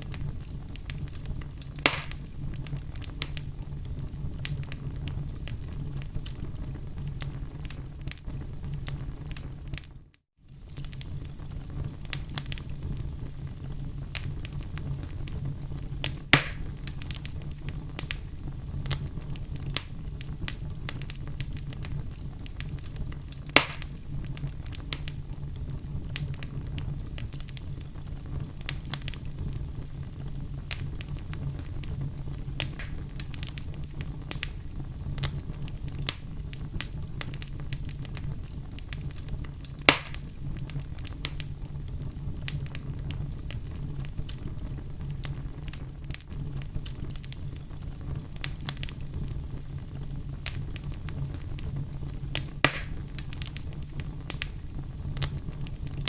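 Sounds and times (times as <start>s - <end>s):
wood fire crackling: 0.0s - 56.0s
sharp loud pops: 1.9s - 2.3s, 16.4s - 16.7s, 23.6s - 23.9s, 39.9s - 40.2s, 52.6s - 53.0s.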